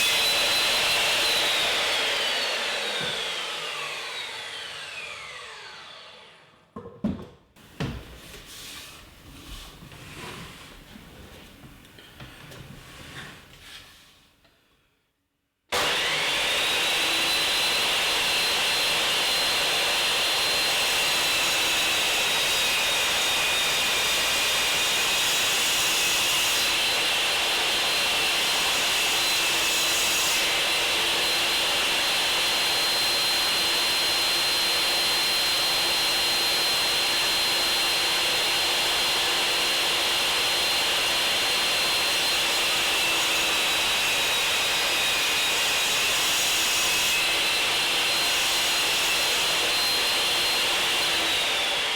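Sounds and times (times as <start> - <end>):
circular saw cutting timber: 0.0 - 6.5, 15.8 - 51.9.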